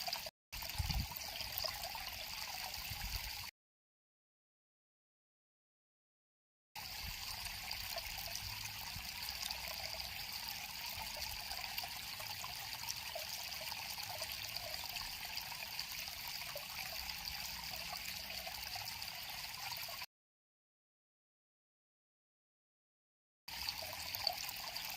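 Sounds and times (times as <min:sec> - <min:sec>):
river water over stones: 0:00.0 - 0:03.5, 0:06.8 - 0:20.1, 0:23.5 - 0:24.9.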